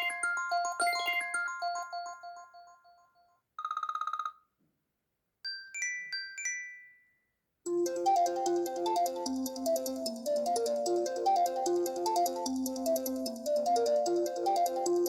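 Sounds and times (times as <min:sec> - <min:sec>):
chiming mallet melody: 0:00.0 - 0:03.2, 0:07.7 - 0:15.0.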